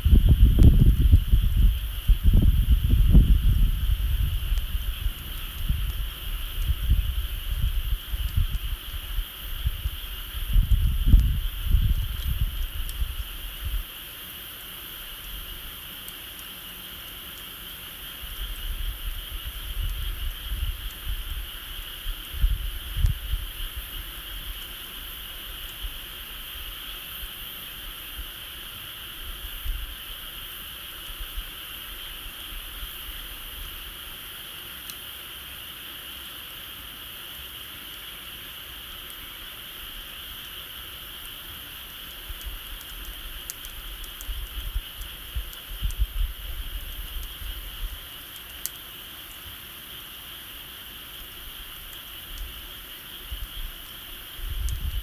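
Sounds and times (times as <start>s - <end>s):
wind rumbling on microphone: 0.0s - 14.0s, 18.2s - 34.0s, 42.0s - 48.2s, 51.2s - 55.0s
insect chorus chirring: 0.0s - 55.0s.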